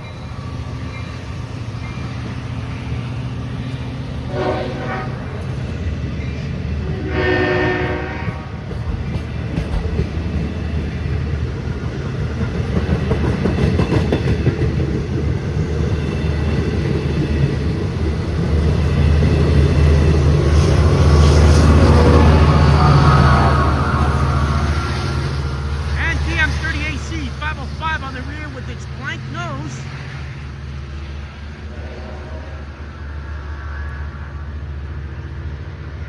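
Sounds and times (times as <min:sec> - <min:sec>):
train horn: 0:04.3 - 0:05.3, 0:06.8 - 0:08.6, 0:21.8 - 0:25.8, 0:31.6 - 0:33.0
train wheels clattering on rails: 0:05.4 - 0:20.0.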